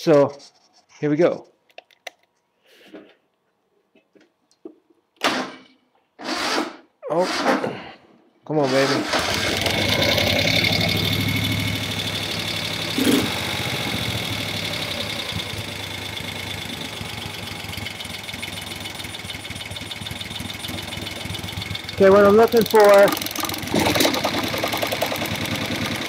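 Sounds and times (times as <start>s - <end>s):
motorcycle engine idling: 9.5s - 26.0s.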